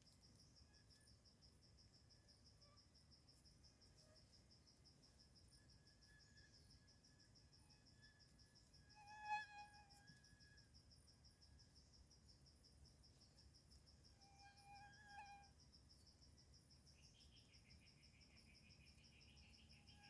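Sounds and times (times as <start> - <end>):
insect trilling: 14.2 - 15.5.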